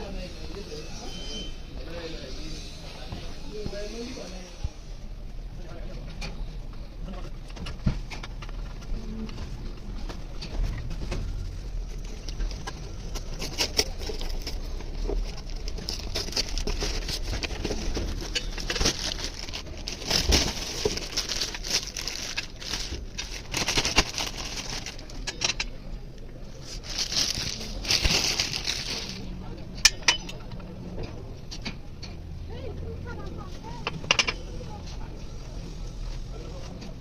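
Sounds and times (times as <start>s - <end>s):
metal tools clicking and scraping: 12.3s - 25.8s, 29.8s - 30.7s.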